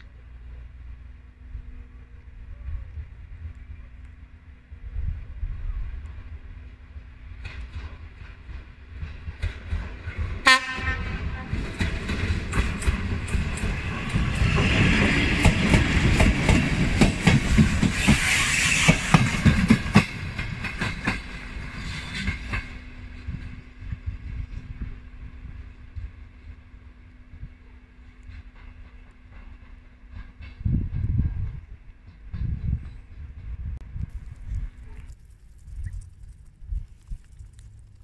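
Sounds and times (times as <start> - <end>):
train wheels clattering over rails: 7.3 - 24.6, 28.3 - 33.8
train horn blast: 10.4 - 11.6.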